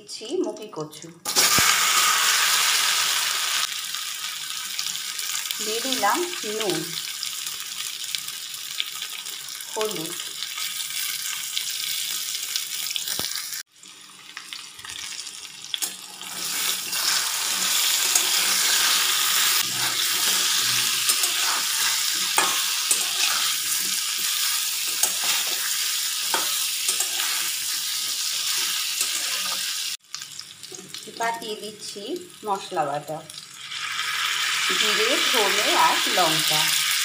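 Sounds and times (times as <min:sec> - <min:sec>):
food sizzling in hot oil: 0:00.2 - 0:37.0
metal spatula scraping a pan: 0:16.2 - 0:29.8.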